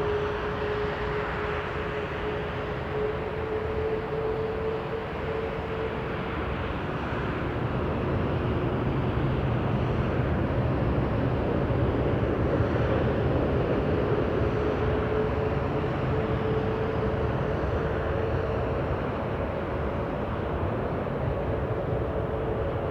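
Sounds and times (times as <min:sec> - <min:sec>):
faint engine whine: 0:00.0 - 0:22.9.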